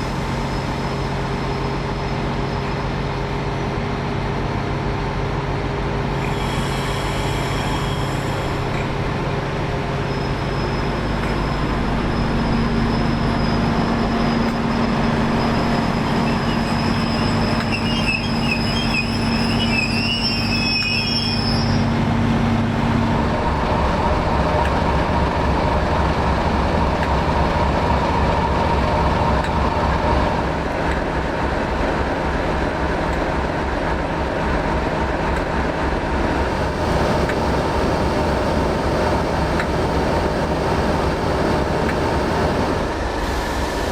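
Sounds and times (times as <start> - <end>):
diesel train engines running: 0.0 - 43.9
metallic wheel squeal: 6.2 - 8.6, 10.0 - 21.9.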